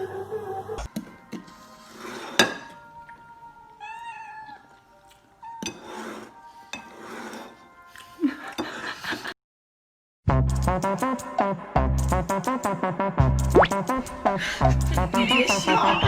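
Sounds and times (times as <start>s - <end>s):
cat meowing: 3.8s - 4.8s
music with heavy beat: 10.4s - 16.0s.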